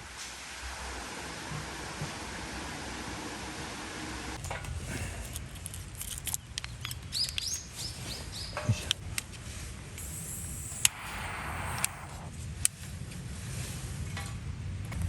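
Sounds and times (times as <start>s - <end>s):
sharp clicks and snaps: 5.3s - 7.8s, 10.0s - 12.8s
small bird chirping: 6.4s - 8.8s.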